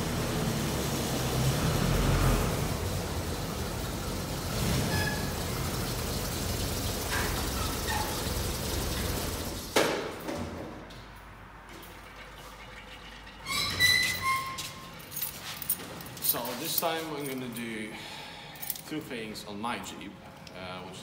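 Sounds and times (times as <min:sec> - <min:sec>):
vehicle engine rumbling: 0:00.0 - 0:09.8.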